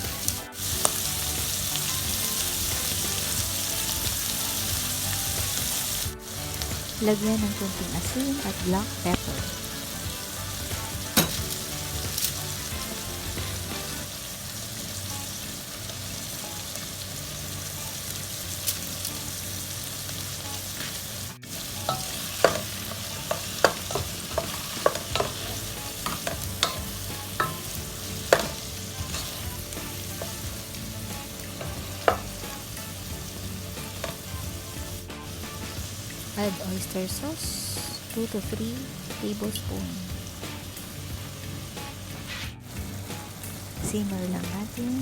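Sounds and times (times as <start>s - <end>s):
food sizzling in hot oil: 0.0s - 45.0s
spatula clacking against pan: 9.1s - 13.8s, 21.8s - 34.6s.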